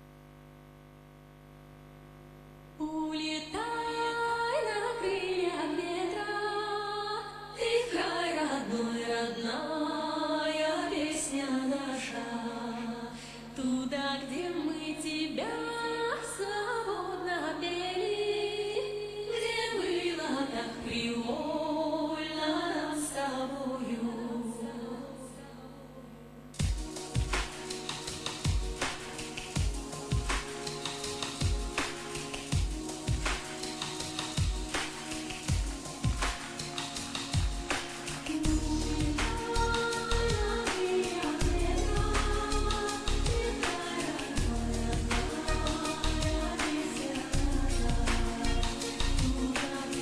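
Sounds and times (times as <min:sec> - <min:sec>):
woman singing slow melody: 0:02.8 - 0:26.5, 0:38.3 - 0:50.0
steady low hum: 0:38.5 - 0:40.6, 0:41.2 - 0:43.6, 0:47.4 - 0:49.4.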